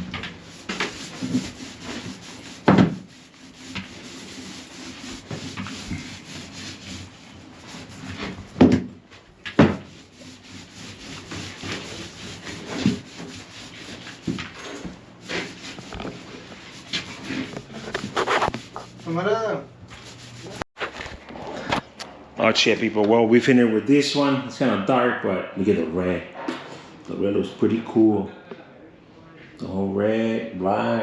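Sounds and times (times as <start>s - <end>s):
gritty paint rubbing strokes: 0.0s - 8.7s, 9.7s - 20.7s.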